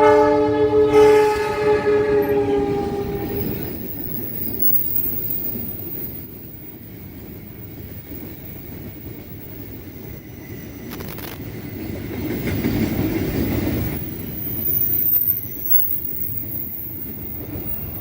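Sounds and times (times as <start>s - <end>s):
train horn: 0.0s - 3.9s
train rumbling along rails: 0.0s - 18.0s.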